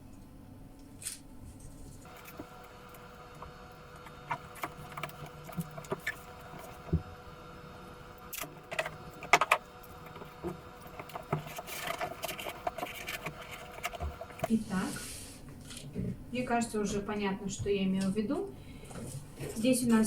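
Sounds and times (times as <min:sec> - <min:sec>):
faint steady hum: 0:00.0 - 0:20.0
scratchy rustling: 0:01.5 - 0:07.0, 0:08.4 - 0:15.2
cardboard handled by hand: 0:08.4 - 0:14.6.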